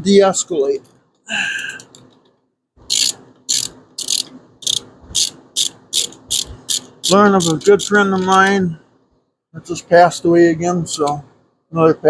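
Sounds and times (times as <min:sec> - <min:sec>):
ratchet wrench clicking: 0:02.9 - 0:08.6.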